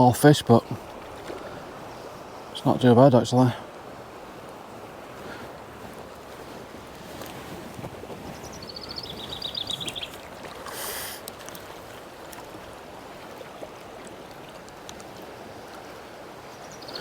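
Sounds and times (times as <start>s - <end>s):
river water flowing: 0.0s - 17.0s
bird trill: 8.6s - 10.2s.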